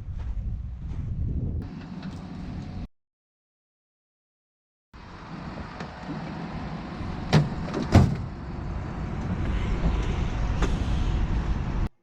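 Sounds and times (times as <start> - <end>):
vehicle engine rumbling: 1.0 - 2.9, 5.0 - 11.9.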